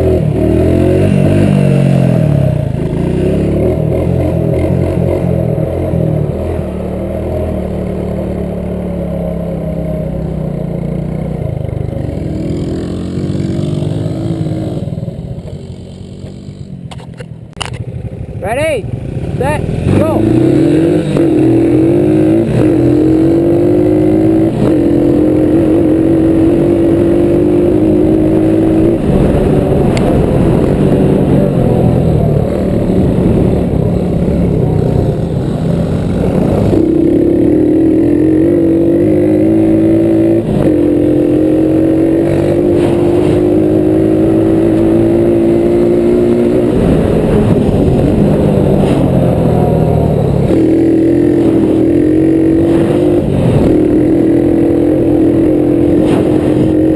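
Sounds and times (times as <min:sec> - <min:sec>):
small engine accelerating through gears: 0:17.8 - 0:56.9.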